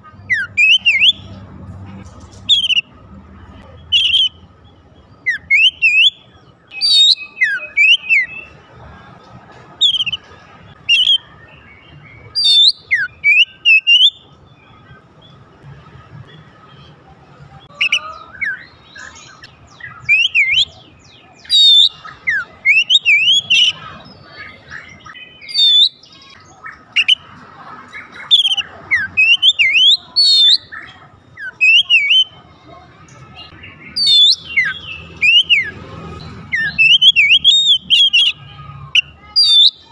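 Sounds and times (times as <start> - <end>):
bird singing whistled phrases: 0.3 - 1.3, 2.5 - 2.8, 3.9 - 4.4, 5.2 - 8.5, 9.8 - 10.2, 10.8 - 11.3, 12.3 - 14.2, 17.8 - 23.9, 24.6 - 27.2, 28.2 - 32.4, 33.4 - 35.8, 36.5 - 38.4, 39.0 - 39.9.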